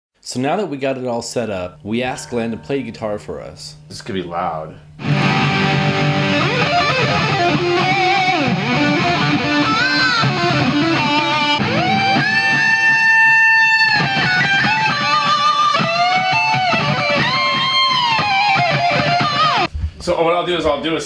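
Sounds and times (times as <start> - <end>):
electric guitar lead: 5.0 - 19.7.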